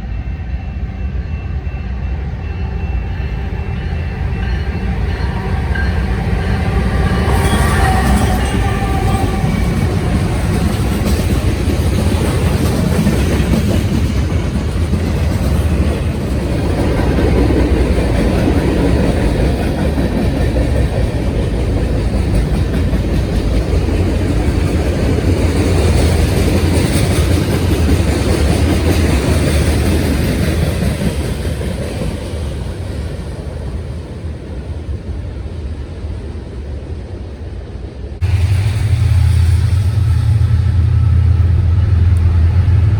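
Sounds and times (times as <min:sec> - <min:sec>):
train wheels rumbling on rails: 0:00.0 - 0:42.9
clickety-clack of wheels: 0:05.7 - 0:34.0.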